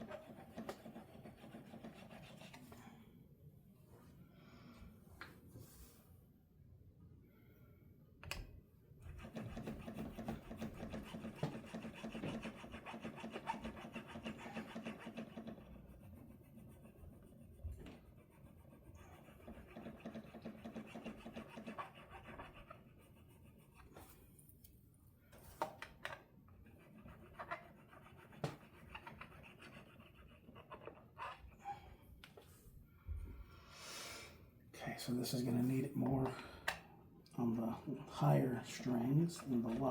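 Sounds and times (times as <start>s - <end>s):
file scraping metal frets: 9.1s - 15.8s, 19.1s - 22.8s.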